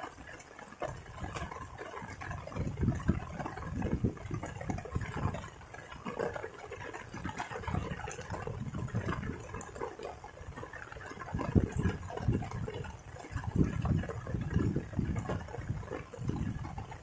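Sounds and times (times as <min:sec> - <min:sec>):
small irregular crackles: 0:00.0 - 0:17.0
water splashing and gurgling: 0:00.0 - 0:17.0.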